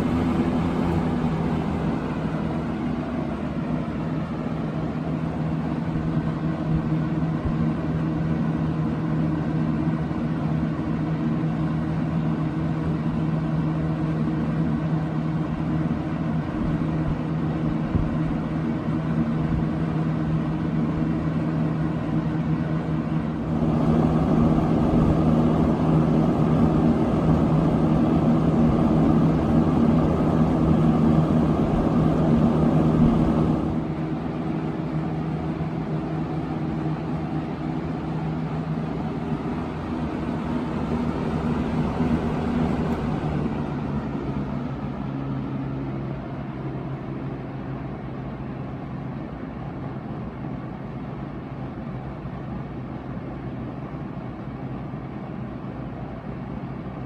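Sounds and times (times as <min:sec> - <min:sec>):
air rushing from fan blades: 0:00.0 - 0:07.8, 0:22.3 - 0:46.6
box fan motor hum: 0:00.0 - 0:14.0, 0:15.0 - 0:47.4.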